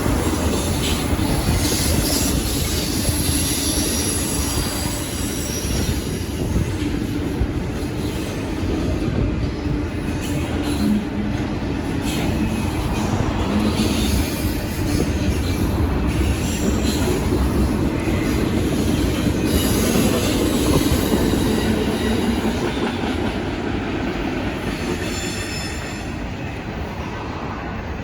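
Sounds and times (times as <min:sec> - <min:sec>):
high wheel squeal: 0:00.0 - 0:06.8, 0:12.0 - 0:22.7, 0:24.8 - 0:26.2
train wheels rumbling on rail: 0:00.0 - 0:28.0.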